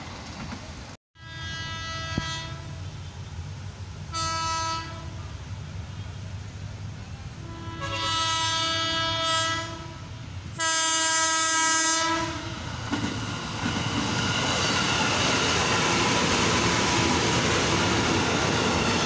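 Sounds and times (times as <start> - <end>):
train wheels clattering on rails: 0.0 - 1.0, 12.6 - 19.0
train horn blasts: 1.2 - 3.2, 4.1 - 5.4, 7.4 - 12.6.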